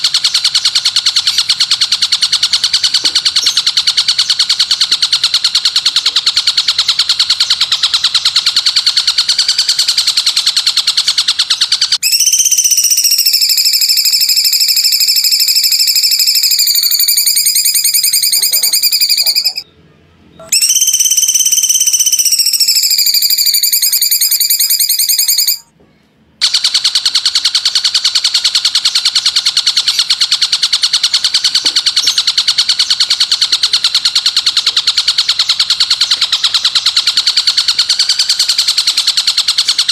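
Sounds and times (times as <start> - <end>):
fast buzzing bird trill: 0.0 - 19.7, 20.4 - 25.7, 26.4 - 39.9
sliding whistled bird notes: 0.0 - 25.7.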